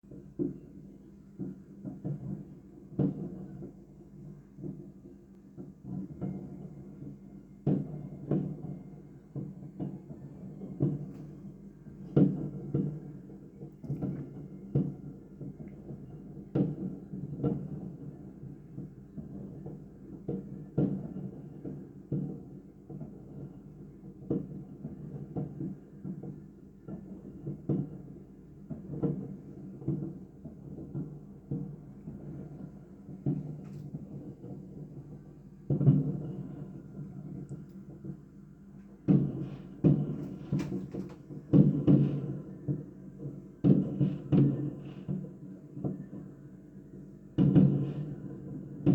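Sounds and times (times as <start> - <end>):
fireworks booming: 1.4 - 4.9, 5.6 - 48.9.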